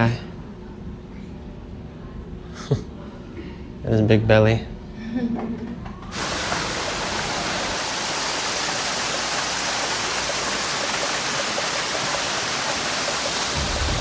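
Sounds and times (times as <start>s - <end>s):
rushing water: 6.1s - 14.0s.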